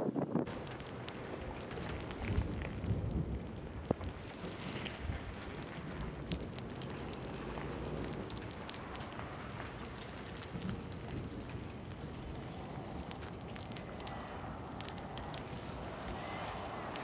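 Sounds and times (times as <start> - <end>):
raindrop ticks: 0.5 - 17.0
steady rain hiss: 0.5 - 17.0.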